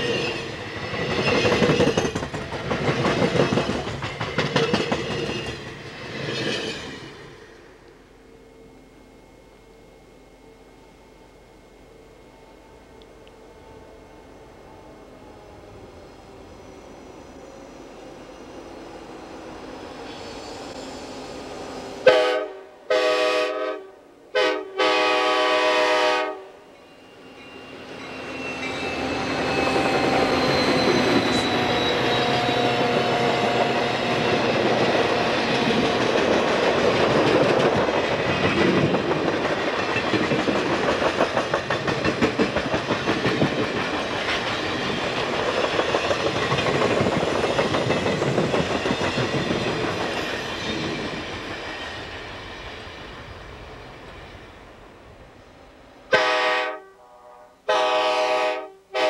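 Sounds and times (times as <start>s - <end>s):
passenger train rumbling past: 0.0s - 59.0s
wheels clicking over rail joints: 0.9s - 6.9s, 32.8s - 51.5s
train air horn: 22.0s - 26.7s, 56.1s - 59.0s.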